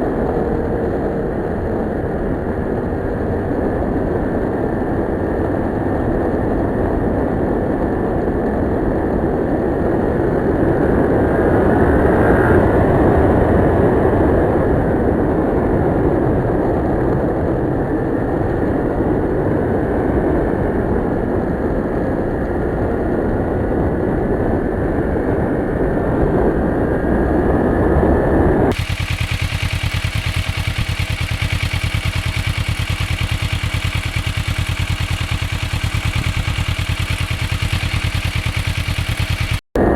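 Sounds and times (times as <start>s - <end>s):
motorcycle engine running: 28.7s - 39.9s.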